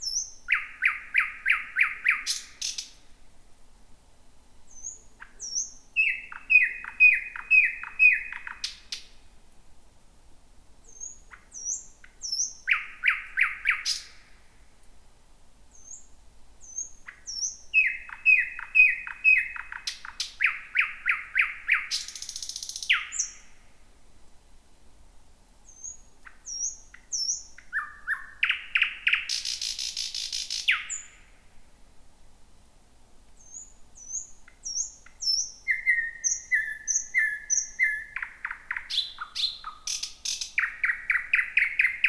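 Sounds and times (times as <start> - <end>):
nightingale singing: 0.0 - 3.0, 4.7 - 9.2, 10.8 - 14.4, 15.7 - 23.7, 25.6 - 31.4, 33.3 - 42.0.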